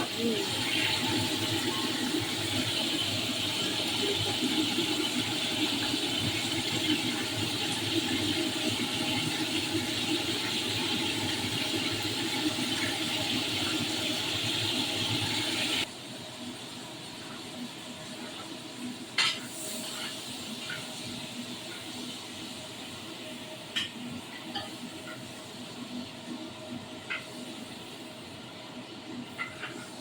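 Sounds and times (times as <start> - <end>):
shrimp sizzling in hot oil: 0.0 - 15.9, 18.7 - 26.3.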